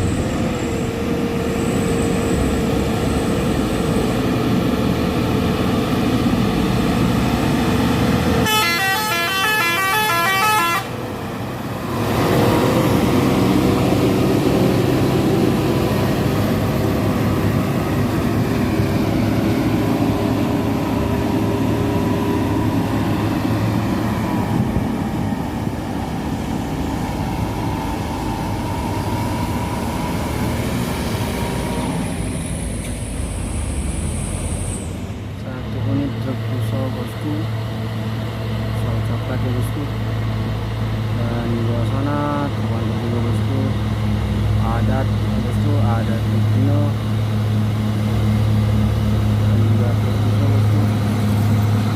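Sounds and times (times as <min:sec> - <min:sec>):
heavy truck diesel engines: 0:00.0 - 0:51.9
multi-tone horn: 0:08.4 - 0:11.0.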